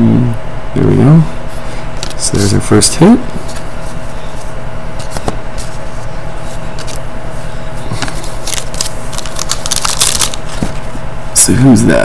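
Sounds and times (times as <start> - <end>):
steady background hum: 0.0 - 12.0
trading cards being handled: 2.0 - 2.6, 3.4 - 10.8.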